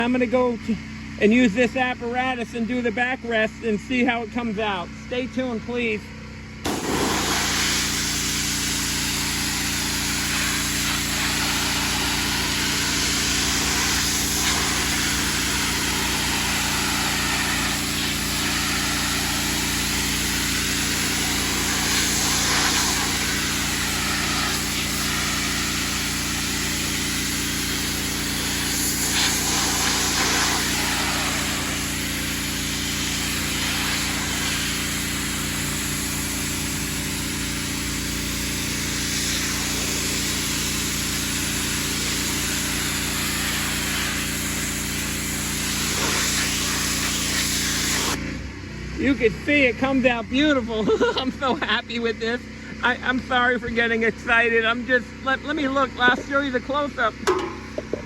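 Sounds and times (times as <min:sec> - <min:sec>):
pressure washer engine running: 0:00.0 - 0:58.0
water spray hissing on wood: 0:06.7 - 0:48.2.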